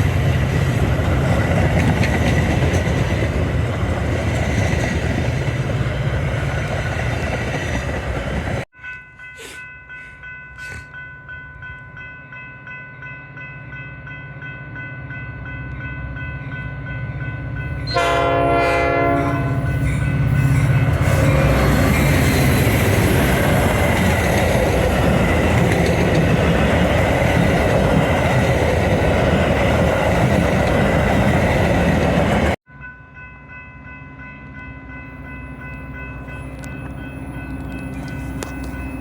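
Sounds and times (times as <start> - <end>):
train passing close by: 0.0 - 39.0
train horn: 17.8 - 20.2.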